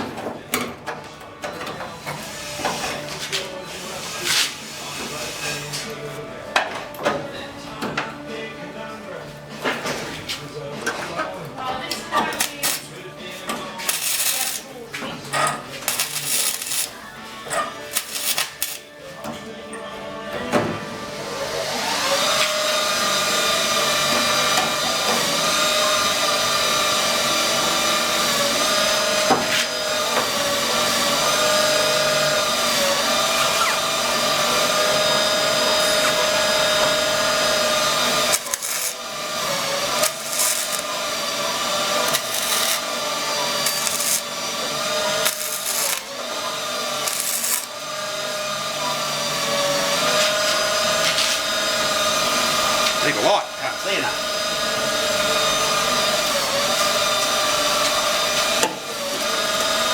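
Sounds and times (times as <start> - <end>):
power tool cutting sheet metal: 12.0 - 13.0, 13.6 - 14.8, 15.4 - 18.9, 21.2 - 59.9.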